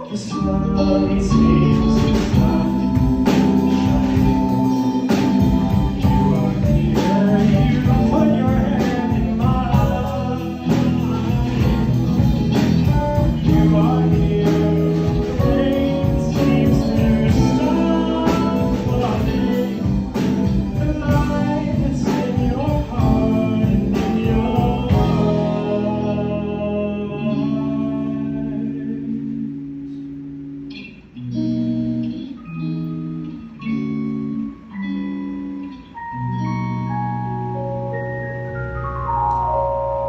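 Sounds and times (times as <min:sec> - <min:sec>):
bass guitar: 0:00.0 - 0:40.0
electric guitar: 0:00.0 - 0:40.0
keyboard: 0:00.0 - 0:40.0
drum kit steady beat: 0:01.3 - 0:26.0.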